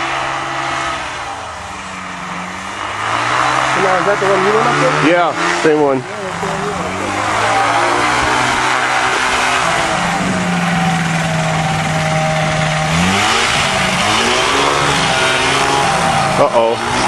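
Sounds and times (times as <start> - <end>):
light aircraft engine and propeller: 3.7 - 17.0.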